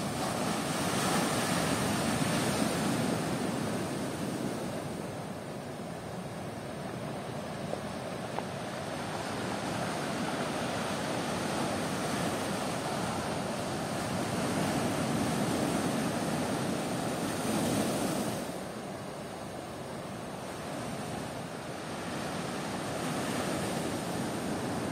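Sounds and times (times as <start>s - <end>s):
ocean surf washing in: 0.0s - 24.9s.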